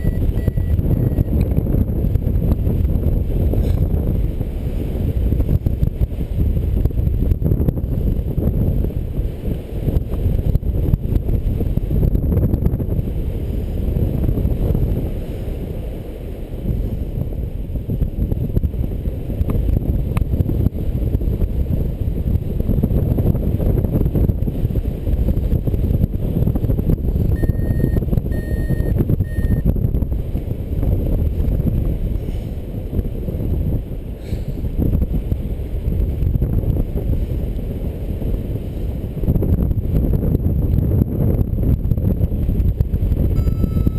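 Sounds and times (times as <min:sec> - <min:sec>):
short electronic beeps: 0:00.0 - 0:01.4, 0:27.3 - 0:29.7, 0:43.4 - 0:43.9
wind buffeting microphone: 0:00.0 - 0:43.9.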